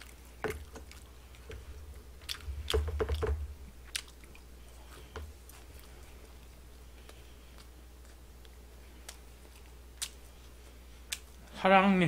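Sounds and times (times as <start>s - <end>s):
chewing crispy fried chicken: 3.8s - 11.5s.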